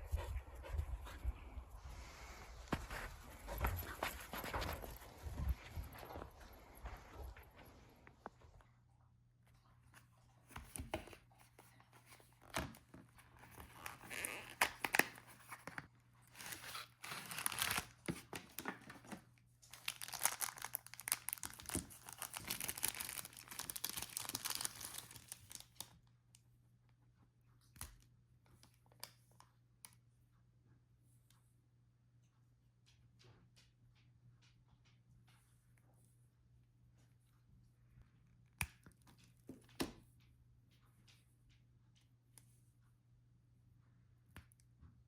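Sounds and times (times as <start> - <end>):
tearing and crinkling: 16.3 - 18.4, 19.7 - 25.8.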